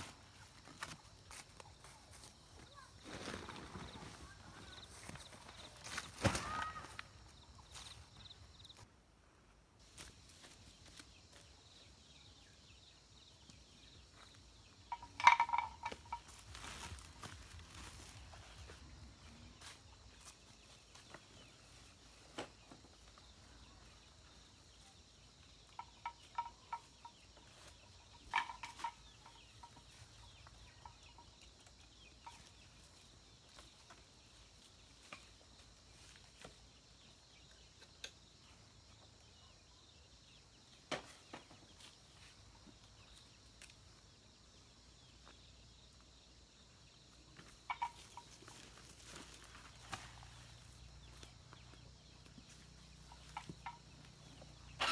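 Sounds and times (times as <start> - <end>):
chickens clucking: 47.3 - 54.9.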